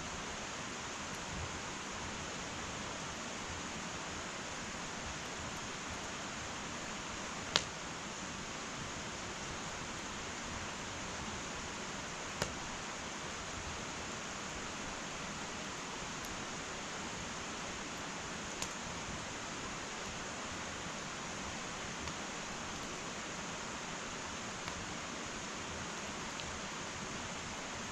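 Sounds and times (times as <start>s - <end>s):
fire hissing: 0.0s - 27.9s
burning wood crackling: 7.0s - 8.1s, 10.8s - 27.9s.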